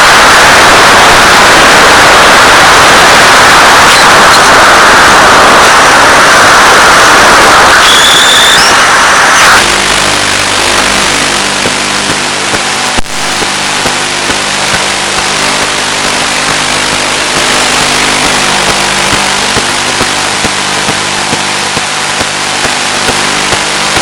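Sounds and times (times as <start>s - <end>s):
electric motor and propeller humming: 0.0s - 12.8s
sharp crackle: 0.0s - 24.0s.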